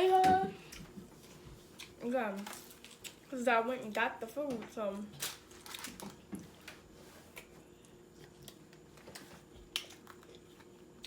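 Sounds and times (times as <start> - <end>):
faint steady hum: 0.0 - 11.0
chewing: 7.3 - 11.0.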